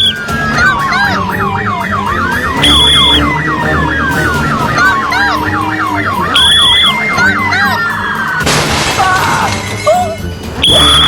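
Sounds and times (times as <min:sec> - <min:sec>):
police siren yelp and wail: 0:00.0 - 0:11.0
high beep: 0:02.5 - 0:03.8, 0:06.2 - 0:07.3.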